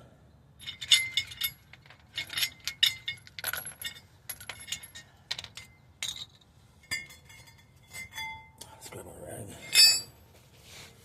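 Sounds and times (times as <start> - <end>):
small metal parts clinking: 0.6 - 8.4.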